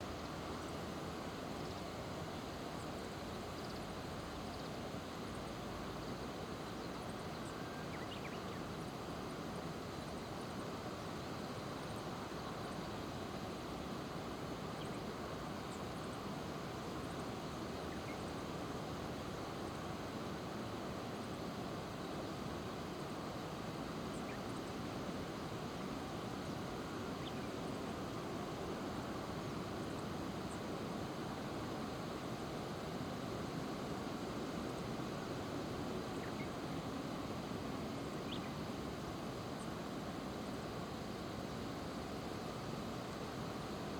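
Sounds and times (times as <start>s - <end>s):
outdoor rumble and hiss: 0.0s - 43.9s
faint high bird chirps: 38.1s - 38.6s.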